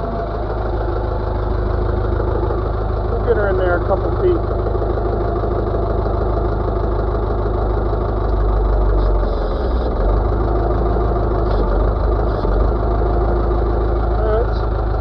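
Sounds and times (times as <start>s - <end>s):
backhoe diesel engine running: 0.0s - 15.0s.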